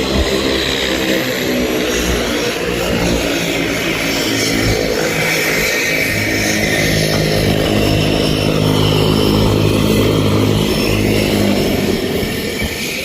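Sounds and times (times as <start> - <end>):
constant rushing noise: 0.0 - 13.0
turboprop engine hum: 0.0 - 13.0.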